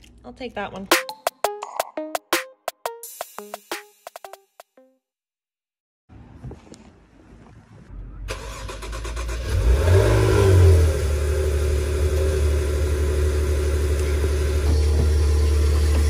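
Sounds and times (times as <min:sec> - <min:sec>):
car engine starting and idling: 0:07.2 - 0:16.0.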